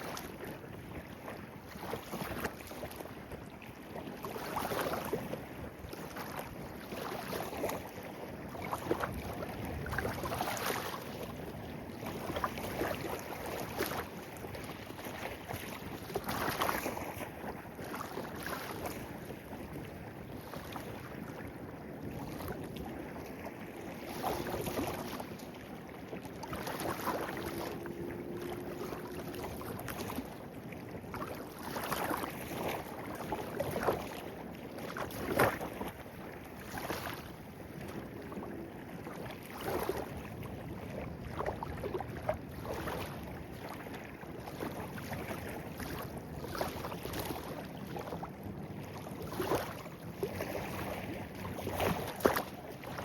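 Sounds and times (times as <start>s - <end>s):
water gurgles and splashes: 0.0s - 53.0s
stream babbling: 22.1s - 30.6s.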